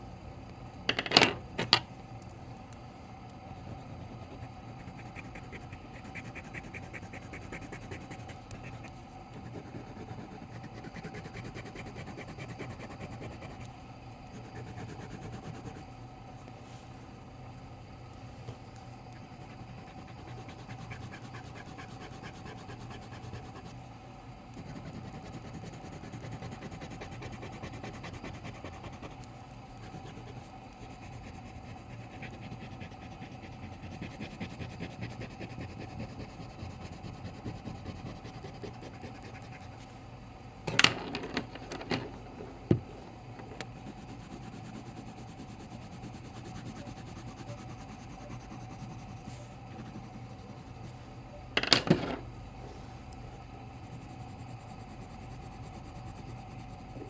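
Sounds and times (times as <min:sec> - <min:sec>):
low steady hum: 0:00.0 - 0:57.0
pen scratching on paper: 0:03.6 - 0:13.6, 0:14.3 - 0:15.9, 0:19.2 - 0:23.8, 0:24.6 - 0:39.8, 0:43.6 - 0:51.0.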